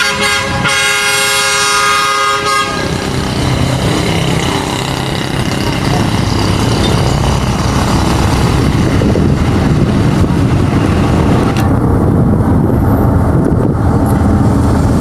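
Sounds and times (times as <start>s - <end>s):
moving train rumble: 0.0s - 15.0s.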